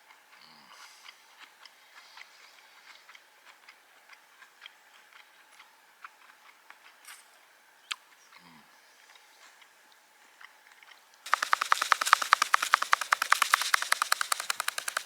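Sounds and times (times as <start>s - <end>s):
light ticks and clicks: 11.3s - 15.0s
sharp click: 11.3s - 15.0s.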